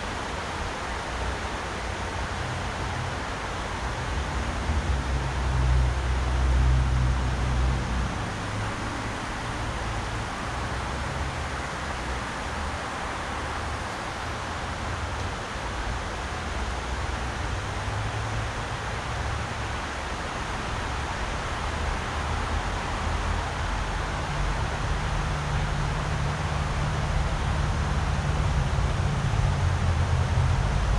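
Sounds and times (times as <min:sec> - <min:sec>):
river rushing over rocks: 0:00.0 - 0:30.9.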